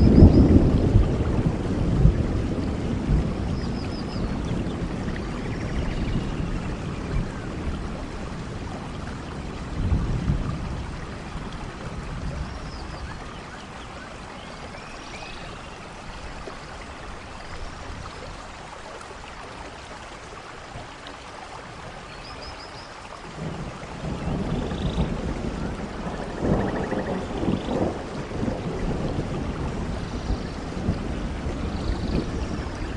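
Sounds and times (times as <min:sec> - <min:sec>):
thunder rumbling: 0:00.0 - 0:13.5, 0:23.2 - 0:32.9
steady rain: 0:00.0 - 0:32.9.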